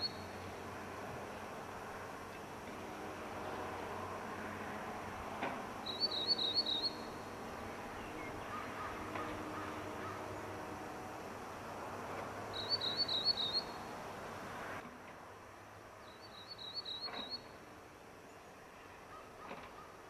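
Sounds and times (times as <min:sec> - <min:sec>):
outdoor background noise: 0:00.0 - 0:20.0
songbird warbling: 0:05.8 - 0:07.2, 0:12.6 - 0:13.8.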